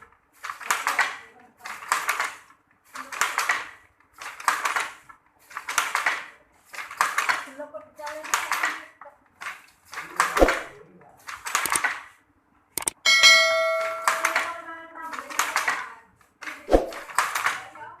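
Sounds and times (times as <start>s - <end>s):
loom clattering: 12.8s - 17.8s
metallic ring: 13.0s - 14.6s.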